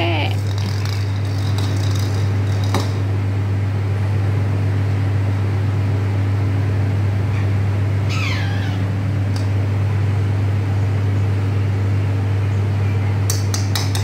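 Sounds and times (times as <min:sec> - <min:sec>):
low mechanical hum: 0:00.0 - 0:14.0
parrot chirp: 0:08.1 - 0:08.8.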